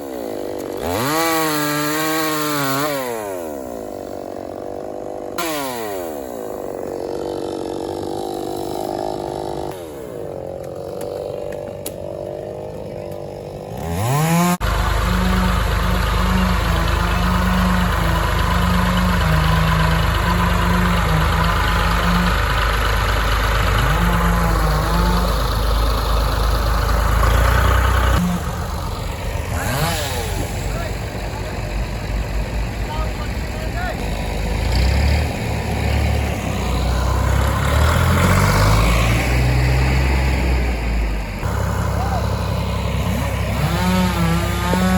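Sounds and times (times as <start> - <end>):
chainsaw idling and revving: 0.0 - 44.9
loud low diesel engine: 11.8 - 44.9.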